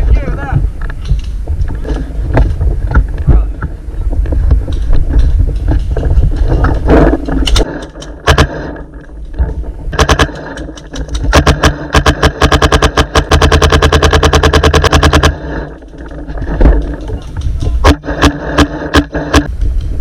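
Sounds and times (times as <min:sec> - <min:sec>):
handling noise: 0:00.0 - 0:20.0
low wind rumble: 0:00.0 - 0:20.0
paintball marker firing: 0:07.5 - 0:08.9, 0:09.9 - 0:15.7, 0:17.8 - 0:19.5.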